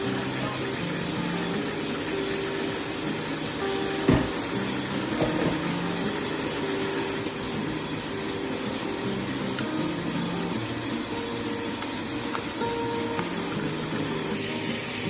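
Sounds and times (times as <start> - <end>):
machine whirring: 0.0 - 15.0
small knock: 4.1 - 4.4
thump: 4.1 - 4.4.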